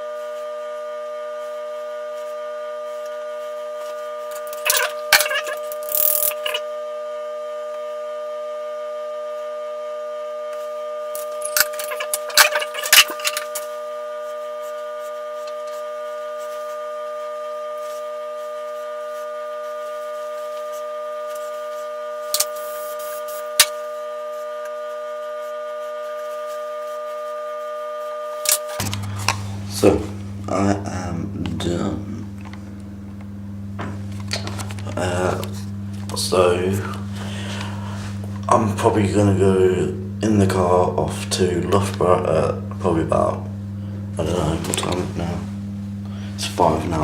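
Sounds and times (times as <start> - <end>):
sustained drone chord: 28.5 - 47.0.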